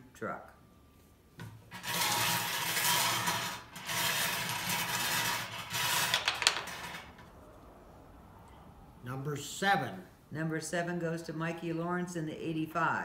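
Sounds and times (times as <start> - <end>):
balls rattling in a container: 1.7 - 7.2.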